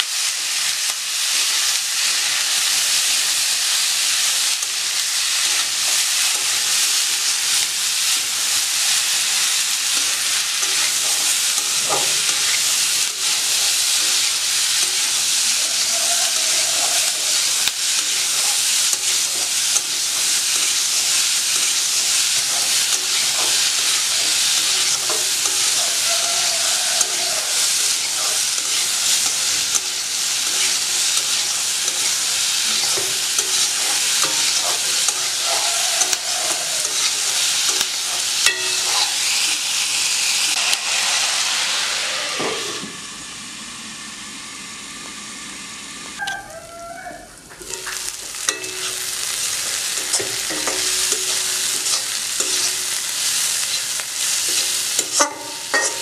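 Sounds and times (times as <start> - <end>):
onions sizzling in hot oil: 0.0 - 56.0
spatula scraping a pan: 8.8 - 42.8, 47.6 - 56.0.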